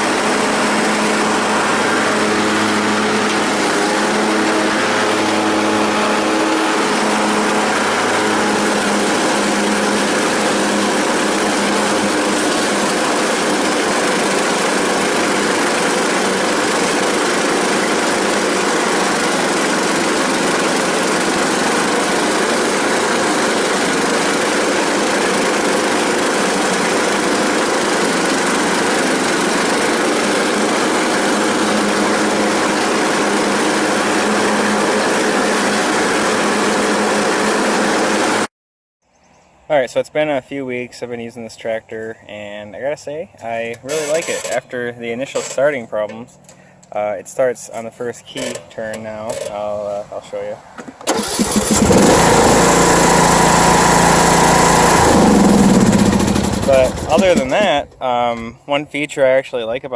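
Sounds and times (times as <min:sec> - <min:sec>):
lawn mower engine running: 0:00.0 - 0:38.5, 0:43.7 - 0:44.6, 0:50.8 - 0:58.4.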